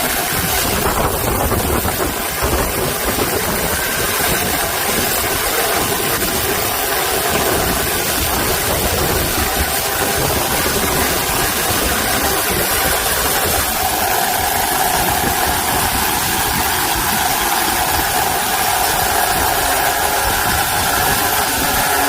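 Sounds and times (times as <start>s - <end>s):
steady higher tone: 0.0s - 22.0s
chainsaw cutting wood: 2.8s - 22.0s.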